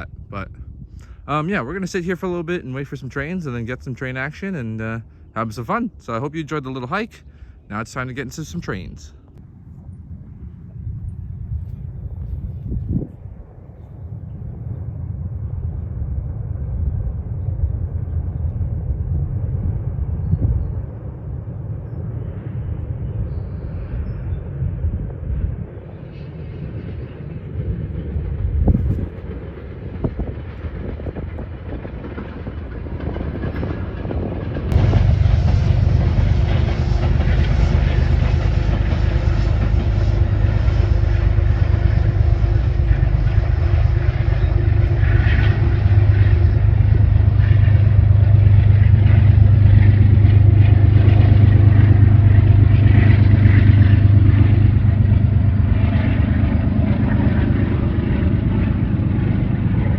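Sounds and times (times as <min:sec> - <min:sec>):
train passing: 0:00.0 - 0:59.9.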